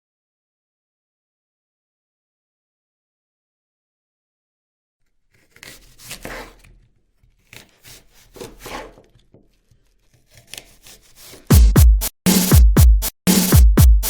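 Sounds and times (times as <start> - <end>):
rubbing and scraping: 5.2 - 11.6.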